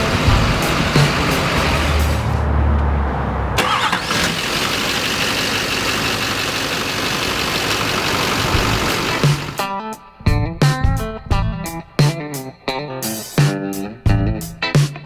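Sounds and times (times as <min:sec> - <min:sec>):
diesel truck engine running: 0:00.0 - 0:02.8, 0:03.6 - 0:09.7.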